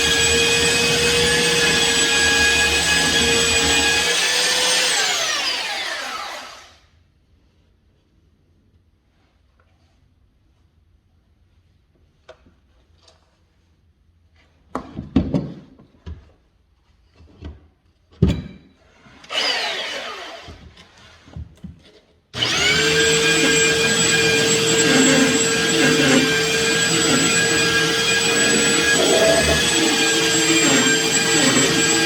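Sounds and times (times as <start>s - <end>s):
electric power sander whining: 0.0s - 6.8s, 19.3s - 20.6s, 22.4s - 32.0s.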